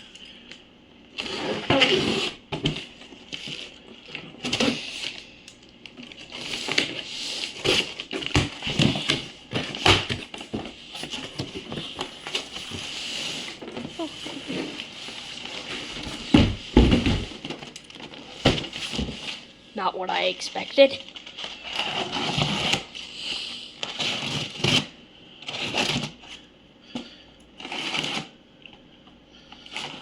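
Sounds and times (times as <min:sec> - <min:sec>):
scratchy rasp: 0:01.2 - 0:02.4.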